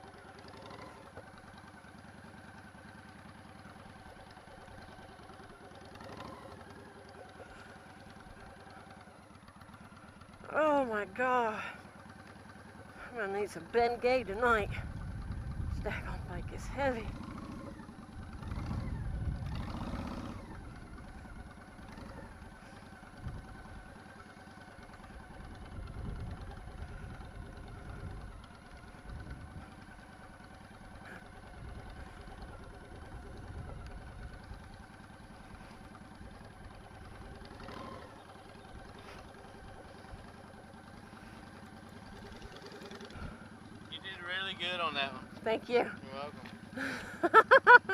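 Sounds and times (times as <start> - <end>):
motorcycle engine running slowly: 0.0 - 47.9
wind rumble on microphone: 14.6 - 17.2, 18.6 - 19.7, 23.2 - 23.6, 25.6 - 28.4.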